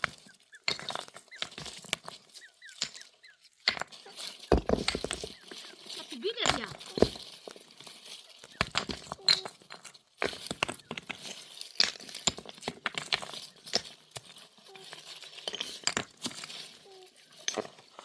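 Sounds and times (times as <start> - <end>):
utensils clinking and knocking: 3.6 - 18.0.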